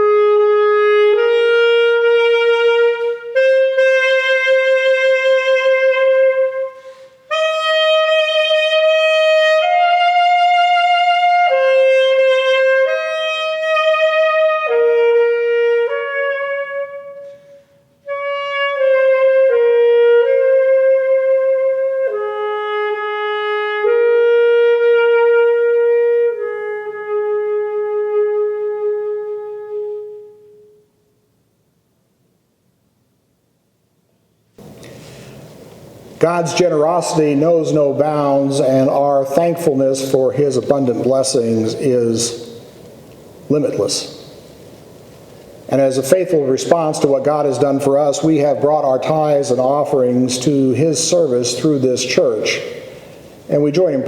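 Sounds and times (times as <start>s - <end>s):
wind instrument slow melody: 0.0s - 31.3s.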